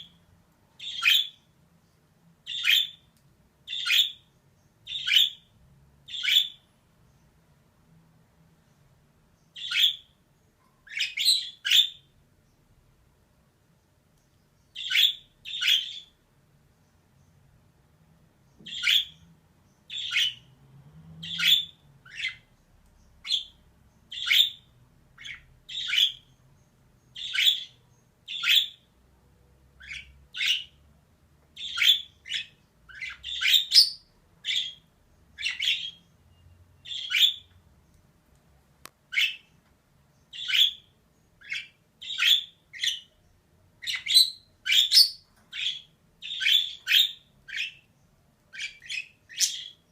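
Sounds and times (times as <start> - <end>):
budgerigar calling: 0.8 - 1.4, 3.7 - 4.2, 4.9 - 5.5, 6.1 - 6.6, 9.6 - 10.1, 14.8 - 16.1, 18.7 - 19.2, 19.9 - 20.5, 21.2 - 22.4, 24.1 - 26.3, 27.2 - 28.8, 31.6 - 34.8, 35.4 - 36.0, 36.8 - 37.5, 40.3 - 43.1, 43.8 - 47.8, 48.5 - 49.9.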